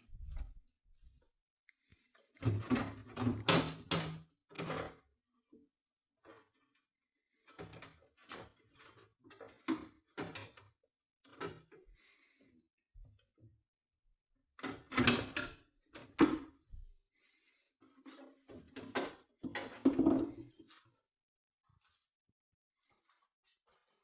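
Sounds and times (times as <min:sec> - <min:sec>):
hard objects knocking and scraping: 0:18.6 - 0:20.6.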